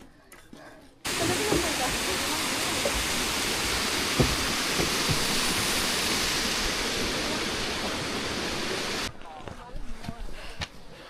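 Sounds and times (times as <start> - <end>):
steady rushing wind or water: 1.1 - 9.1.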